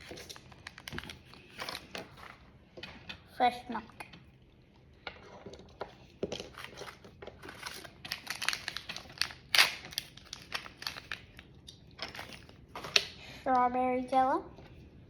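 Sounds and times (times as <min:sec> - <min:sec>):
plastic packaging crinkling: 0:00.0 - 0:02.4, 0:05.5 - 0:13.2.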